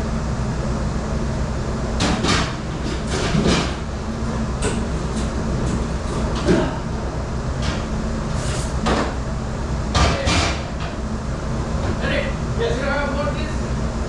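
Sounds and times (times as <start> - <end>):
kitchen machinery hum: 0.0 - 14.0
dishes and racks clattering: 2.0 - 3.8, 4.6 - 6.9, 9.9 - 11.0.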